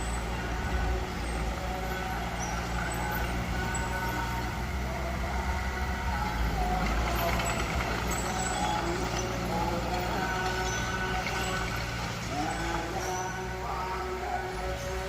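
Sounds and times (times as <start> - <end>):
heavy machinery diesel engine: 0.0 - 15.0.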